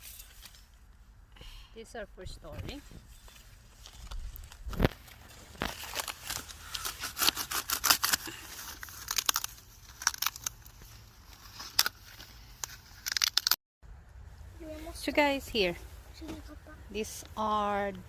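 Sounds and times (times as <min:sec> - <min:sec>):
cabbage leaves tearing and snapping: 0:04.0 - 0:13.6.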